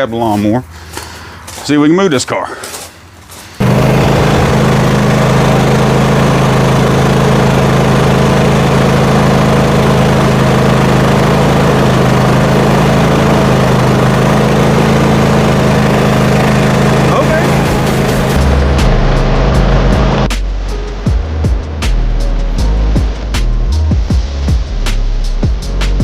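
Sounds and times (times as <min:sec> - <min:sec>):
lawn mower engine running: 0:03.6 - 0:20.3.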